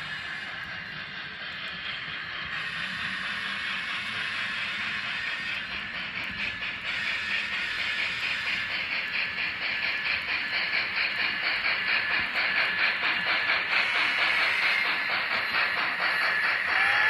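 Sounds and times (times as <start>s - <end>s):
steady steam hiss: 0.0s - 17.0s
steam locomotive exhaust chuffing: 0.0s - 17.0s
locomotive whistle: 13.8s - 17.0s.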